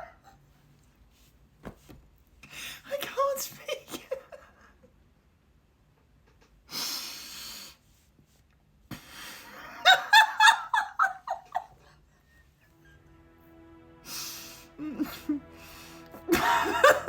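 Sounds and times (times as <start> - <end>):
high-pitched laughs: 9.6 - 12.0.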